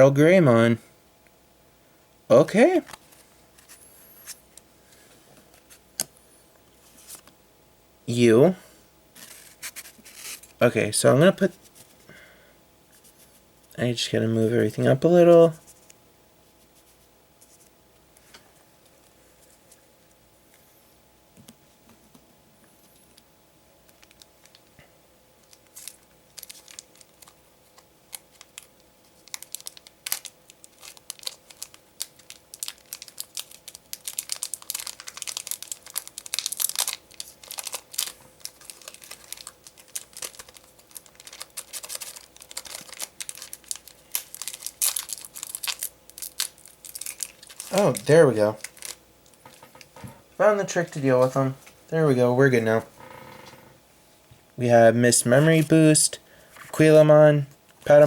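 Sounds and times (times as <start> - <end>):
foil wrapper crinkling and tearing: 23.9 - 24.7, 25.4 - 49.8.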